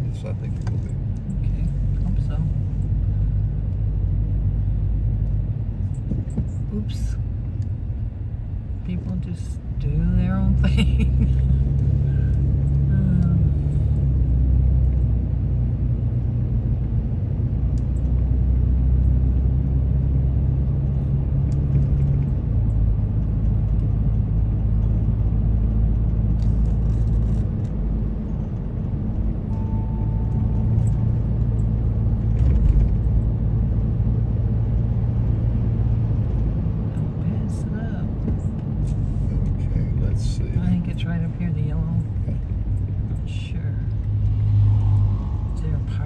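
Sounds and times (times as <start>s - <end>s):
car engine and road rumble: 0.0s - 46.0s.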